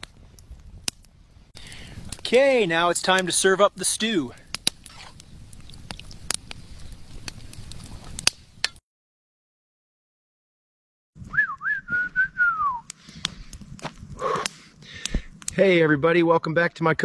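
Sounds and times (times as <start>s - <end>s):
wobbling whistle: 11.3s - 12.9s.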